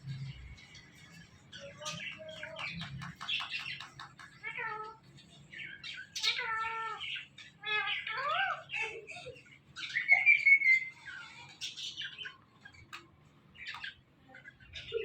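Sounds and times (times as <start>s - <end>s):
parrot chirping: 0.7s - 13.0s.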